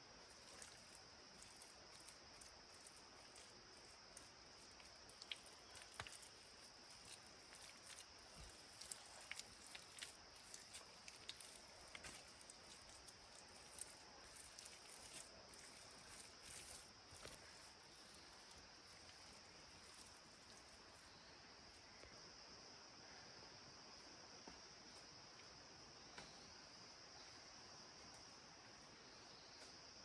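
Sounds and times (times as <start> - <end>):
insects chirring: 0.0 - 30.0
light clicks and crackles: 0.3 - 21.0.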